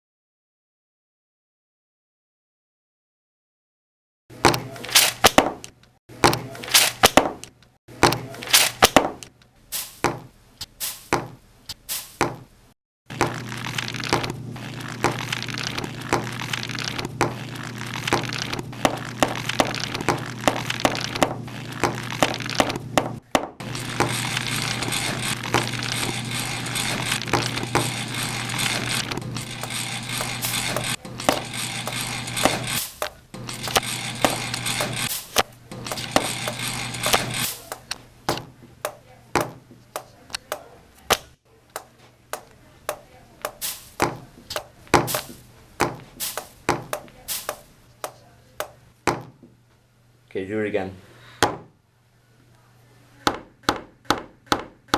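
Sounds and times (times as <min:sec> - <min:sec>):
steady low hum: 0:12.4 - 0:41.0.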